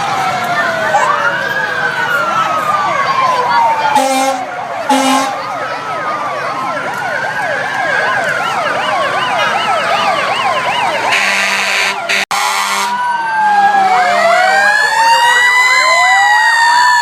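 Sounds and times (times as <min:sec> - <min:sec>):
emergency vehicle sirens: 0:00.0 - 0:17.0
low steady horn: 0:04.0 - 0:05.4, 0:11.1 - 0:13.0.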